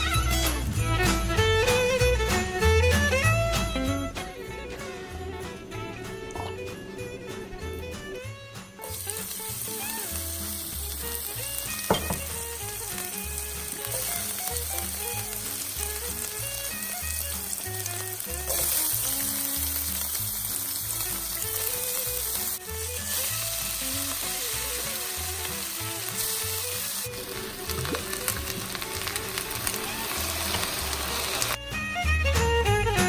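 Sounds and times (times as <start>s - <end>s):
background music with bass line: 0.0s - 33.0s
food sizzling in a pan: 8.8s - 31.6s
sharp knock: 11.9s - 12.4s.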